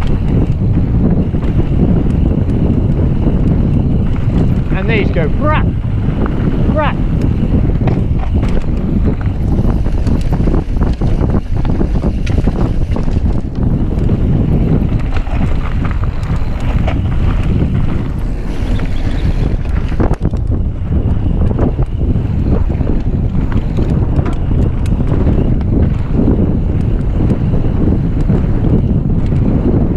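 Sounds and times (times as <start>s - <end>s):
bike rattling clicks and knocks: 0.0s - 29.9s
bike tyre rumble: 0.0s - 29.9s
wind rushing over microphone: 0.0s - 29.9s.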